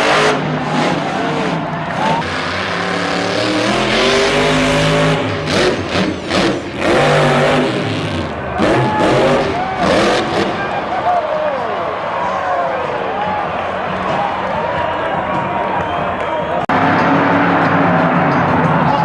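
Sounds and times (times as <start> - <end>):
monster truck engines revving: 0.0 - 12.4, 16.4 - 19.0.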